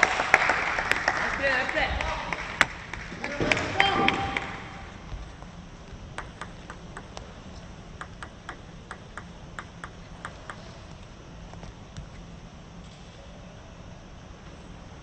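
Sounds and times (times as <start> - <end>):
table tennis ball bouncing: 2.6 - 11.1.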